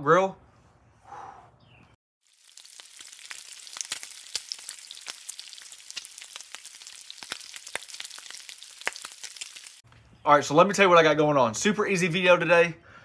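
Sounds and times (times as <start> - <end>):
meat sizzling on a griddle: 2.2 - 9.8.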